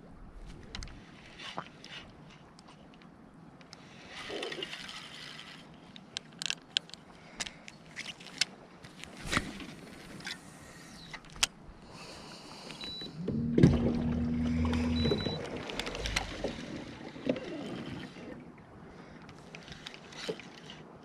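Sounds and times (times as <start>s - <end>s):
clicks and knocks of handled gear: 0.5s - 9.4s.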